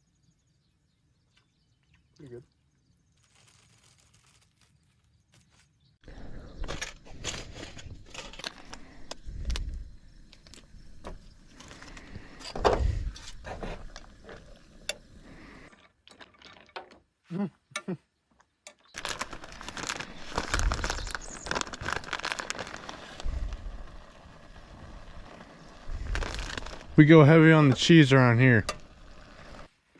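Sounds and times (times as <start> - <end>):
handling rustle: 3.1 - 5.8.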